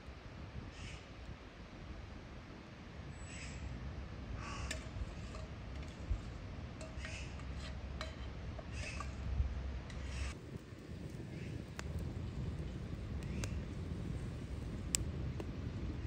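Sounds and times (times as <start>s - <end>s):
low rumble: 10.3s - 16.0s.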